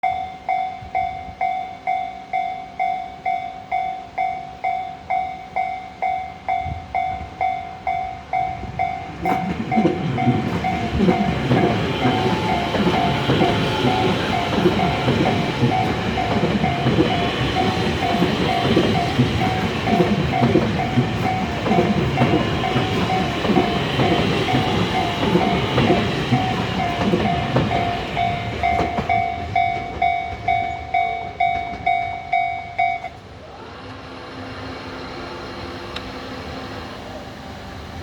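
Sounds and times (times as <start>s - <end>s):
level crossing warning bell: 0.0s - 33.3s
train wheel and rail noise: 0.0s - 38.0s.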